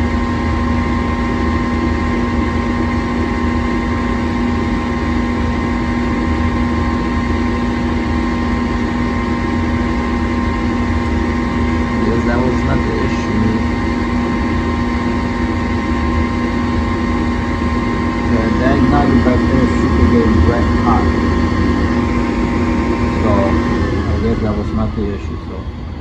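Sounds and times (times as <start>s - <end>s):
furnace fan motor humming: 0.0s - 26.0s.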